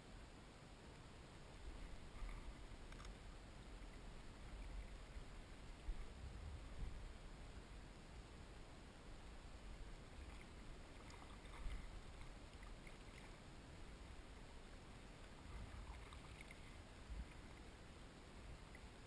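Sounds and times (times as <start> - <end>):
low steady rumble: 0.0 - 19.0
paddle dipping in water: 1.7 - 3.2, 10.0 - 17.8
light splashes: 10.1 - 13.4, 15.2 - 17.7.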